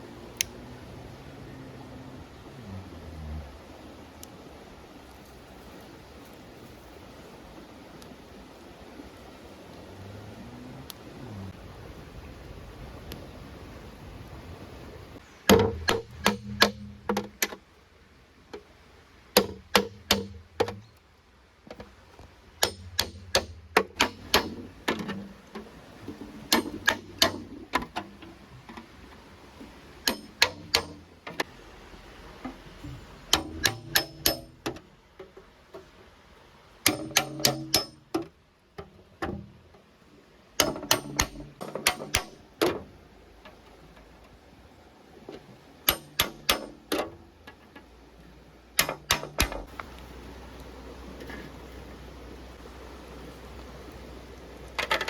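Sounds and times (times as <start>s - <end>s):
sharp knocks in quick groups: 15.5s - 17.6s, 19.4s - 20.9s, 22.6s - 25.2s, 30.1s - 31.5s, 33.3s - 34.8s, 36.8s - 38.3s, 40.6s - 42.8s, 45.9s - 47.1s, 48.8s - 49.8s.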